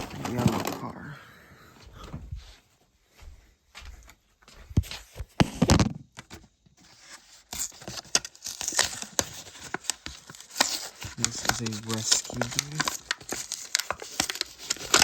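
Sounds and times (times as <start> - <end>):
cardboard tearing: 0.0 - 1.0, 6.9 - 15.0
plastic packaging crinkling: 0.0 - 1.0, 6.9 - 15.0.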